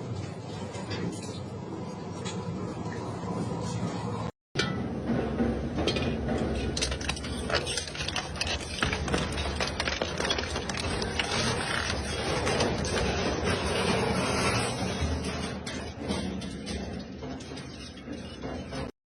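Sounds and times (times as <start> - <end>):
shredder grinding metal: 6.6 - 18.9.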